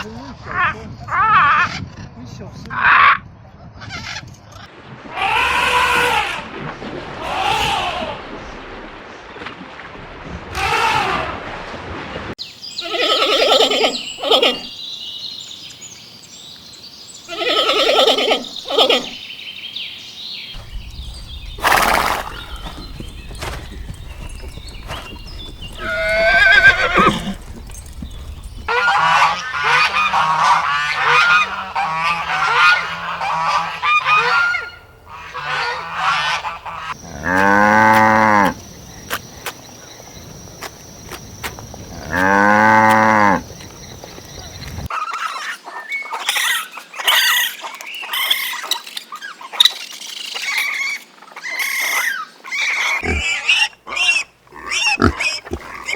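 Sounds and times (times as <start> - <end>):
farm animal calls: 12.8 - 14.7, 17.3 - 19.2, 21.6 - 38.6, 50.5 - 55.9.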